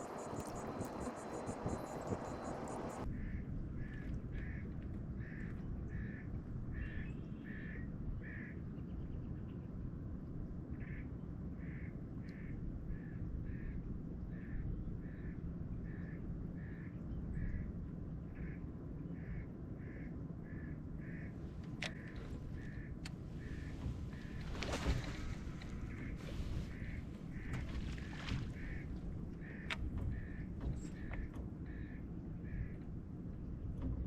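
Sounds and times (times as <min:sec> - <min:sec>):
bird calling: 0:00.0 - 0:03.1, 0:21.0 - 0:32.8
steady low rumble: 0:00.0 - 0:06.7, 0:21.0 - 0:34.0.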